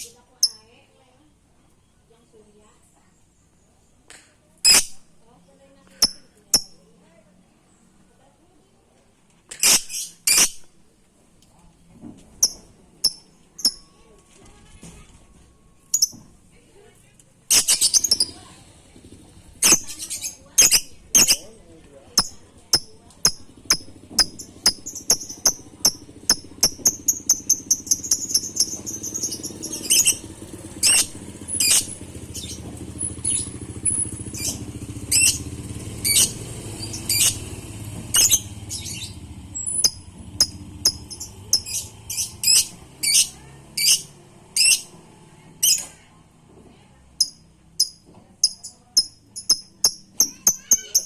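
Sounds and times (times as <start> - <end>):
bird chirping and chattering: 0.0 - 0.7, 4.6 - 5.1, 5.9 - 6.8, 9.5 - 10.7, 12.4 - 14.0, 15.9 - 16.2, 17.5 - 18.6, 19.4 - 37.5, 38.1 - 44.9, 45.6 - 46.0, 47.1 - 51.0.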